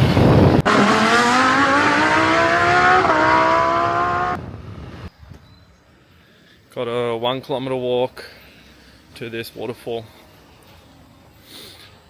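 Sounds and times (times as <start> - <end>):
motorbike engine accelerating: 0.0 - 5.1.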